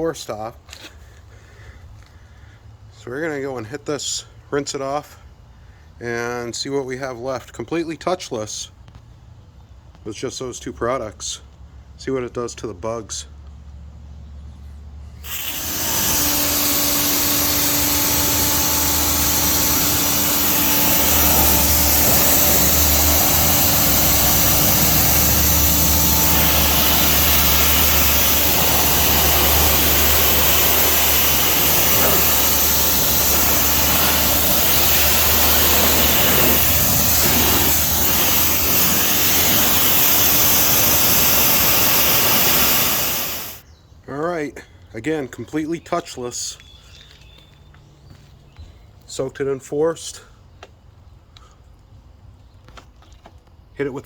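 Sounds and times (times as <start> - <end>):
pressure washer motor humming: 15.2 - 43.6
water jet hissing: 15.2 - 43.6.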